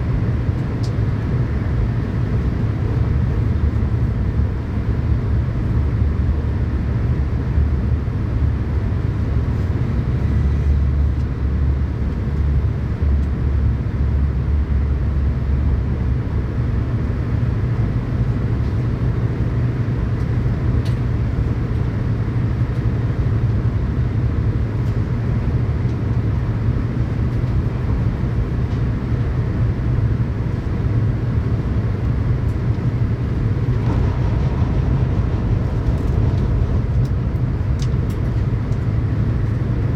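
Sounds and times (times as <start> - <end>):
train wheels rumbling: 31.2 - 39.9.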